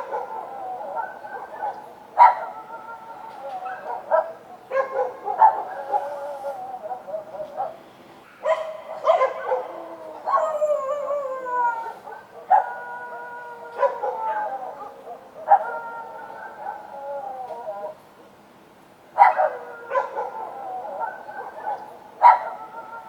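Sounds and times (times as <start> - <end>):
dogs howling: 0.0 - 7.8, 8.4 - 18.0, 19.2 - 23.0
dogs barking: 0.0 - 11.2, 11.8 - 18.0, 19.2 - 23.0.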